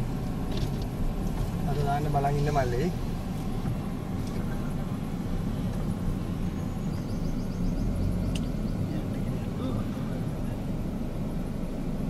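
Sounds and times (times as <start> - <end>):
car engine idling: 0.0 - 12.0
sharp click: 8.3 - 8.6.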